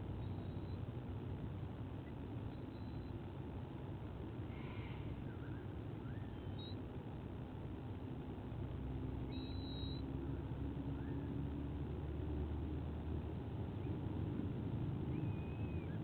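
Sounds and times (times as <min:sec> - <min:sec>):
small birds chirping: 0:00.0 - 0:00.9, 0:01.8 - 0:03.6, 0:04.5 - 0:07.0, 0:09.1 - 0:11.6, 0:13.4 - 0:16.0
low hum: 0:00.0 - 0:16.0
low outdoor rumble: 0:00.0 - 0:16.0.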